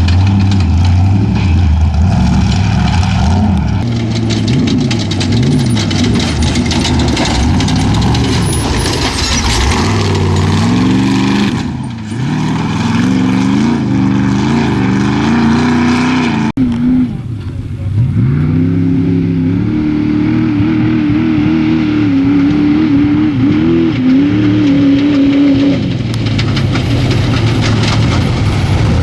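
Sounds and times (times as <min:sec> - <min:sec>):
race truck engine revving: 0:00.0 - 0:29.0.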